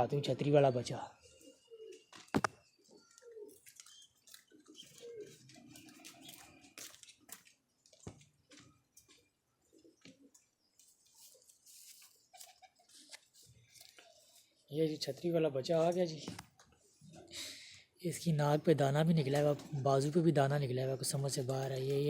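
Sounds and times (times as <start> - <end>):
soft pigeon coos: 1.1 - 6.9, 11.2 - 14.6, 16.8 - 17.5.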